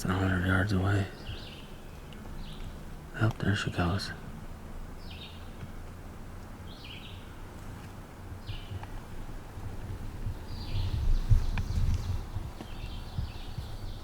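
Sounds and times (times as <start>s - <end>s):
low rumble: 8.2s - 14.0s.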